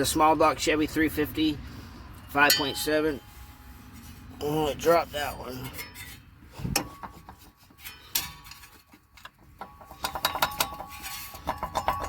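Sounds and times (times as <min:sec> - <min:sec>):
metal tools clinking: 0:05.5 - 0:12.0.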